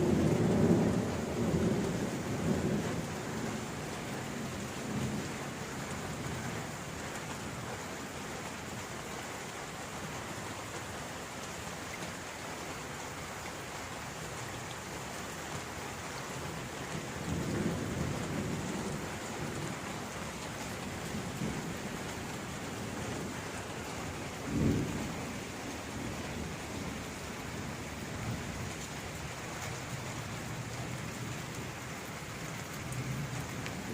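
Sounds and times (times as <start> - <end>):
rumbles of thunder: 0.0 - 6.4, 16.9 - 31.6
heavy rain falling: 0.0 - 33.9.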